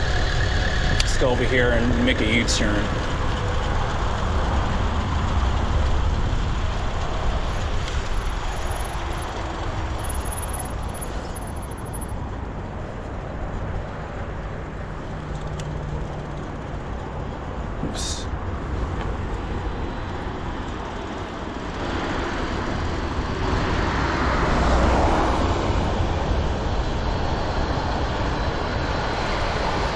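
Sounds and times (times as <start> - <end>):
tyre and road noise: 0.0 - 29.9
wind rushing over microphone: 0.0 - 29.9.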